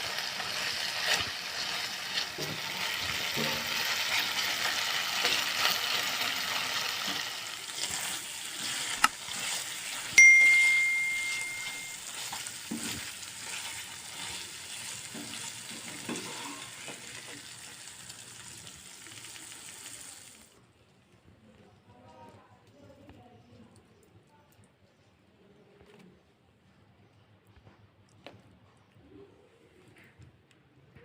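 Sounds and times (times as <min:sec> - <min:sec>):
chicken sizzling in a frying pan: 0:00.0 - 0:20.6
clear ringing ding: 0:10.2 - 0:12.1.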